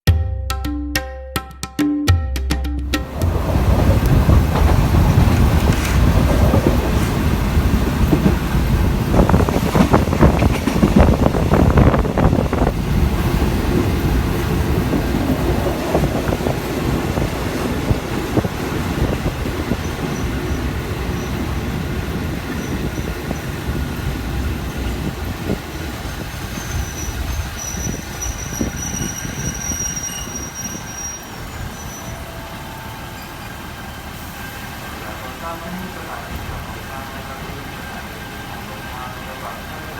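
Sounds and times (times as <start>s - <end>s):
train carriage rumbling on rails: 2.9s - 39.9s
high wheel squeal: 15.4s - 35.0s.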